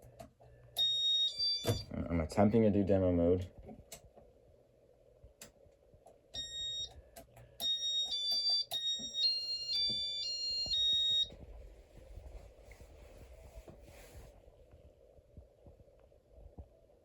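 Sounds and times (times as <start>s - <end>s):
electronic beeps: 0.8s - 1.9s, 7.6s - 11.3s.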